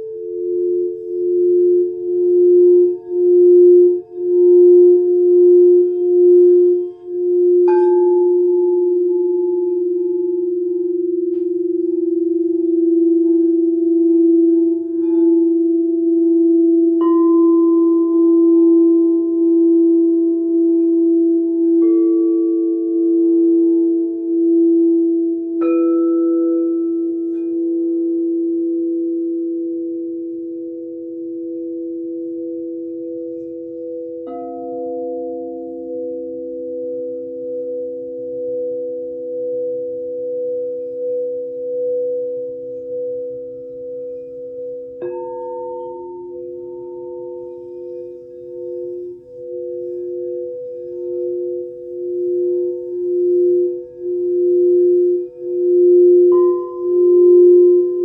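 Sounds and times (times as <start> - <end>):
singing bowl struck: 0.0 - 29.7, 44.9 - 58.0
singing bowl low ringing tone: 0.0 - 58.0.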